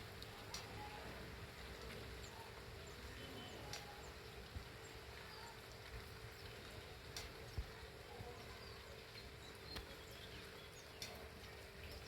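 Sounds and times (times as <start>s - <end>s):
sparrows chirping: 2.2s - 5.6s, 8.3s - 12.0s.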